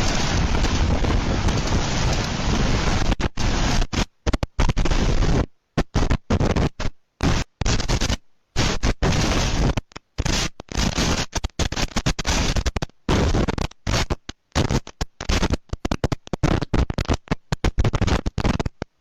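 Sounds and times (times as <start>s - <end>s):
strong wind on microphone: 0.0s - 3.8s.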